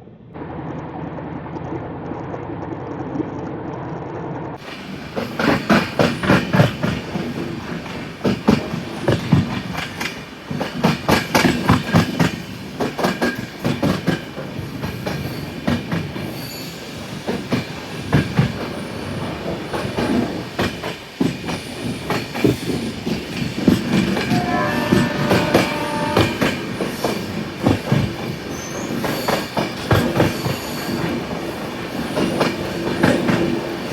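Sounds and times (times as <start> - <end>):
train wheels clattering over rail joints: 4.7 - 33.9
rumble of moving coaches: 23.6 - 26.8.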